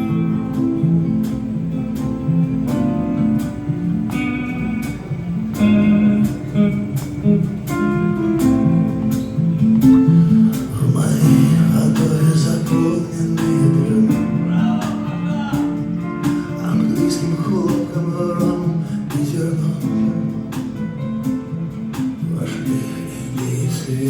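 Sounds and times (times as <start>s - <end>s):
acoustic guitar strumming: 0.0s - 24.0s
steady percussive beat: 0.0s - 24.0s.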